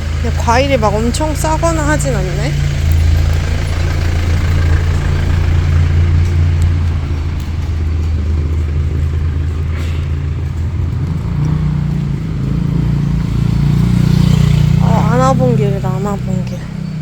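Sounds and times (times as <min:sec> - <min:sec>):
vehicle engine low hum: 0:00.0 - 0:17.0.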